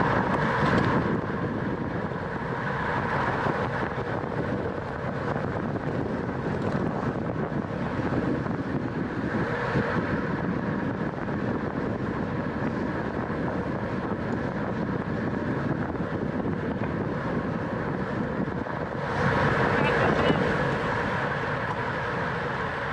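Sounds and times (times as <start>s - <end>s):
wind rushing over microphone: 0.0s - 22.9s.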